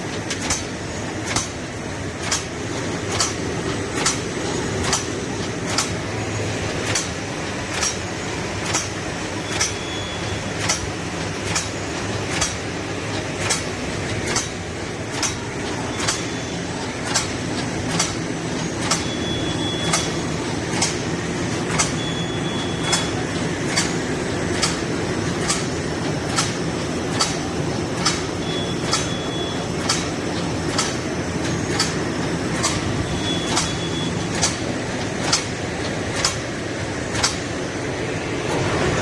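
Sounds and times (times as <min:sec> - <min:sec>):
sharp machine click: 0:02.2 - 0:02.5, 0:03.1 - 0:03.4, 0:04.0 - 0:06.0, 0:06.8 - 0:21.0, 0:21.7 - 0:25.7, 0:26.3 - 0:31.0, 0:31.7 - 0:36.5, 0:37.1 - 0:37.5.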